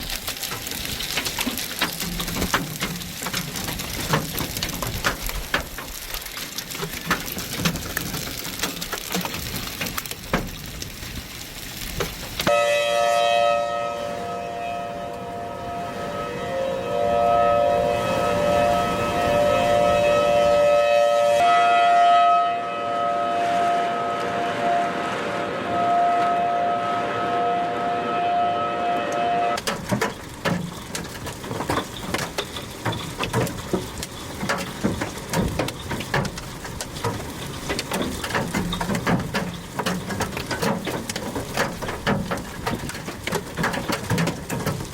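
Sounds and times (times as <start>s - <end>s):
hailstones pelting down: 0.0s - 12.9s, 29.5s - 44.9s
tornado warning siren wailing: 12.4s - 29.8s.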